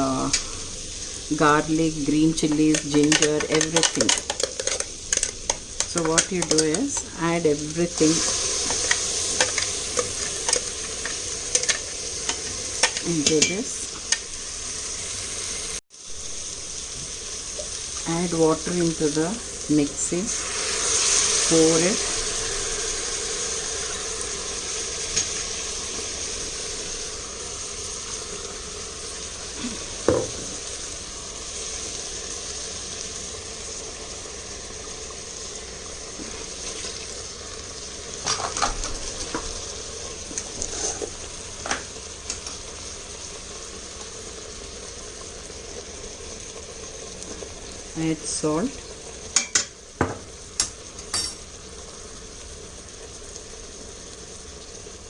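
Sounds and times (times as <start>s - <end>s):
paste sizzling in a pot: 0.0s - 55.0s
spoon stirring and knocking on pot: 2.4s - 7.2s, 8.2s - 13.6s, 30.0s - 30.6s.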